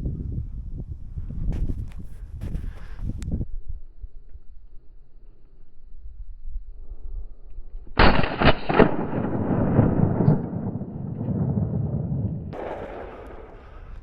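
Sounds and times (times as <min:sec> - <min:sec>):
gunshots with rolling echo: 0:08.0 - 0:14.0.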